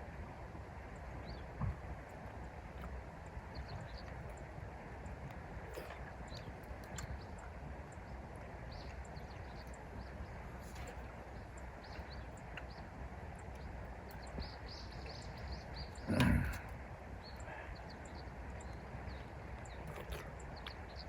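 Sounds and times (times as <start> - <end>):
low outdoor rumble: 0.0 - 21.0
small birds chirping: 0.1 - 21.0.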